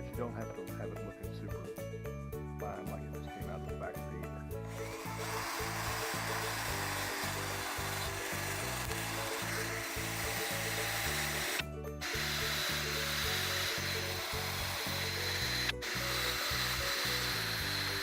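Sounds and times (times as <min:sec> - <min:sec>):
power tool scouring metal: 0:04.7 - 0:18.0.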